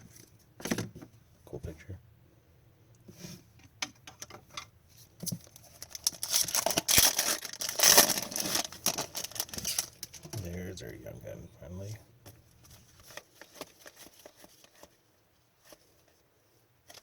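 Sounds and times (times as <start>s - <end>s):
foil wrapper crinkling and tearing: 5.4s - 10.4s.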